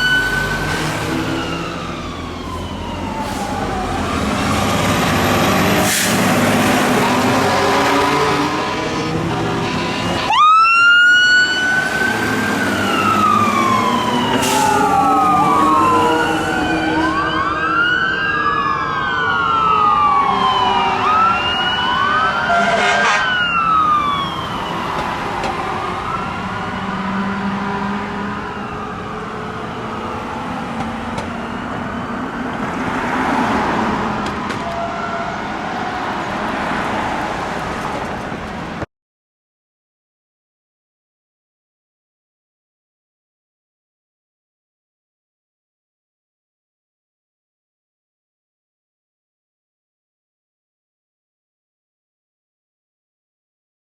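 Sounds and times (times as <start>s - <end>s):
fire truck sirens wailing: 0.0s - 38.9s.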